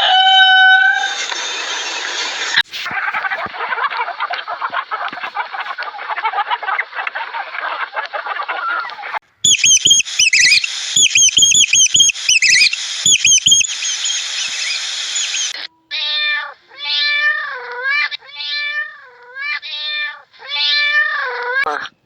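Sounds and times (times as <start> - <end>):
high-pitched chirping squeaks: 9.4 - 15.6
sharp clicks: 9.5 - 15.6
cat meowing: 15.9 - 21.9.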